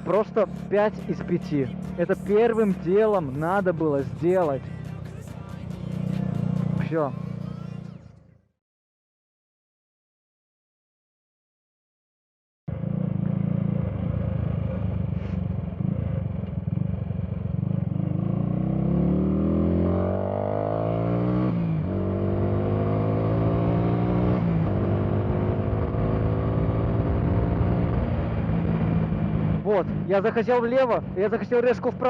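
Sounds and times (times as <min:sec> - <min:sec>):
motorcycle engine accelerating: 0:00.0 - 0:08.0, 0:12.7 - 0:32.0.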